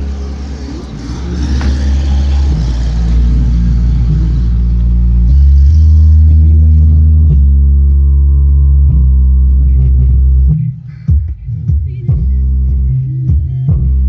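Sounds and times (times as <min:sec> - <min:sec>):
loud bass-heavy music from car speakers: 0:00.0 - 0:14.0.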